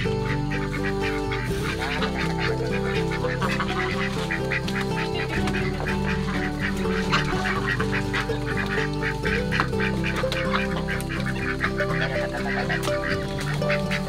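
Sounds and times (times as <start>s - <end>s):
background music: 0.0s - 14.0s
waterfowl quacking and honking: 0.0s - 14.0s.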